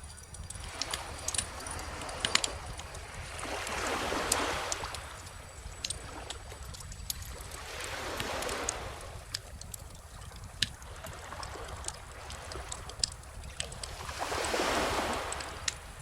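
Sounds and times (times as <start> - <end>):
bonfire crackling and popping: 0.0 - 16.0
ocean waves washing in: 0.7 - 9.4, 13.7 - 16.0.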